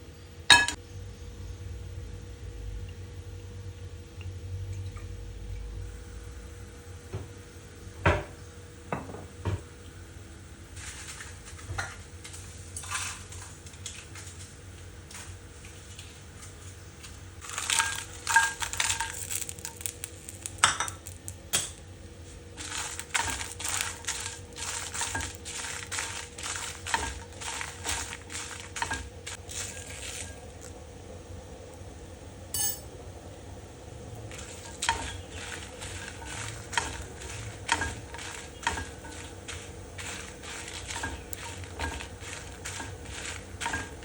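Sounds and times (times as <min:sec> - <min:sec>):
faint steady hum: 0:00.0 - 0:44.0
scraping and clattering in a bowl: 0:10.8 - 0:21.2, 0:22.6 - 0:30.7, 0:34.3 - 0:44.0.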